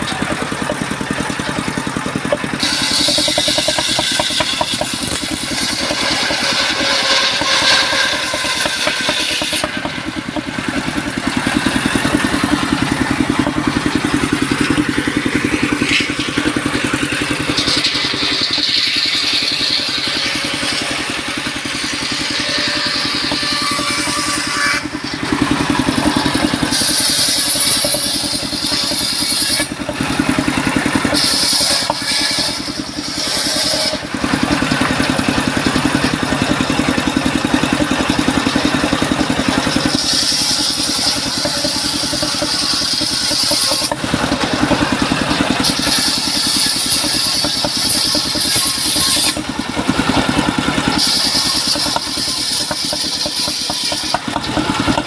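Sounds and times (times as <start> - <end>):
engine drone: 0.0 - 55.0
harsh high-pitched machine noise: 0.0 - 55.0.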